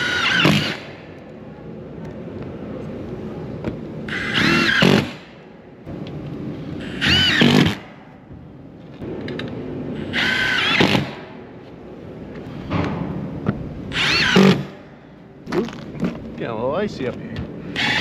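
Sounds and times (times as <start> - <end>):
power drill whirring: 0.0 - 0.9, 4.1 - 5.2, 6.8 - 7.8, 10.0 - 11.1, 13.9 - 14.7, 17.8 - 18.0.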